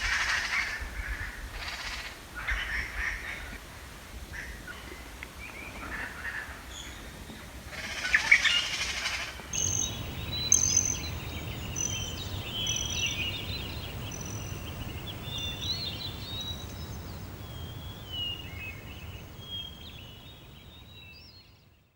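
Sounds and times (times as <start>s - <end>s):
steady low rumble: 9.6s - 20.8s
birds chirping and trilling: 9.6s - 21.6s.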